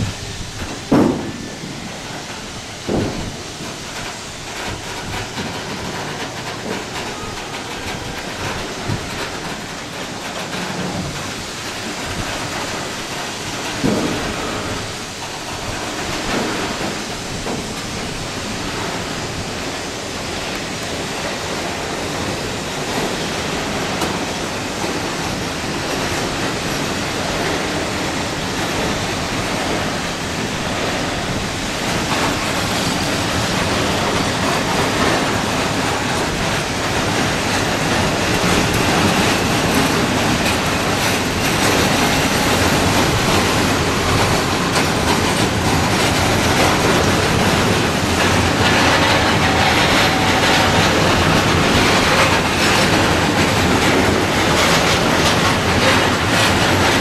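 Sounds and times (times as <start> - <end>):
train rushing along track: 0.0 - 57.0
knocks on track: 0.9 - 1.8.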